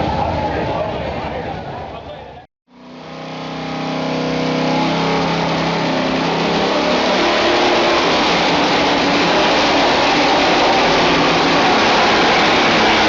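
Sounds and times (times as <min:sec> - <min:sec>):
truck engine running hard: 0:02.7 - 0:13.0.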